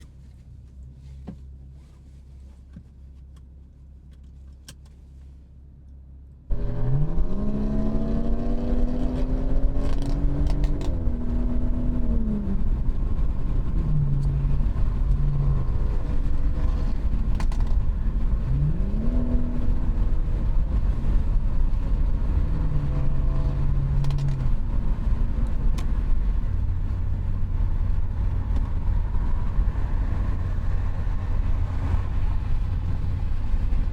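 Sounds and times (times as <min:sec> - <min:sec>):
car exhaust engine revving: 0:06.5 - 0:17.3, 0:17.9 - 0:25.7
low hum: 0:06.5 - 0:33.9.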